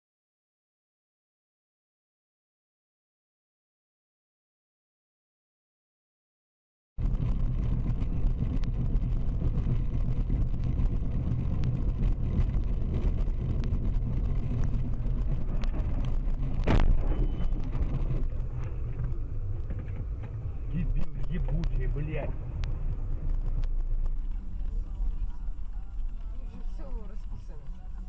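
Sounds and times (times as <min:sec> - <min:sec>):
car engine and road noise: 0:07.0 - 0:28.0.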